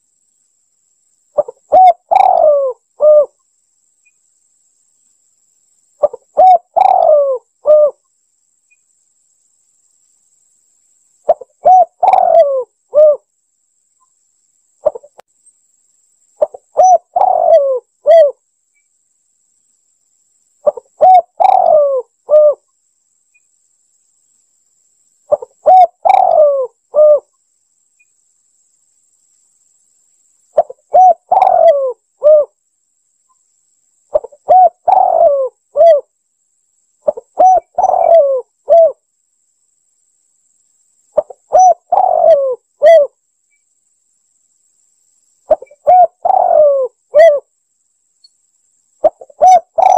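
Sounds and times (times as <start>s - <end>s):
dove cooing: 1.4s - 3.4s, 6.0s - 8.0s, 11.3s - 13.2s, 14.8s - 15.2s, 16.4s - 18.4s, 20.6s - 22.6s, 25.3s - 27.3s, 30.6s - 32.5s, 34.1s - 36.1s, 37.0s - 39.0s, 41.2s - 43.1s, 45.5s - 47.5s, 49.0s - 49.9s.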